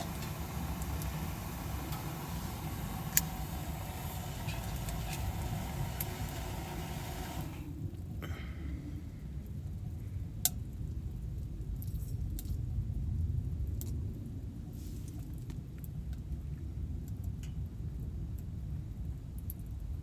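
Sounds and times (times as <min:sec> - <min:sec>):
low engine-like rumble: 0:00.0 - 0:11.7.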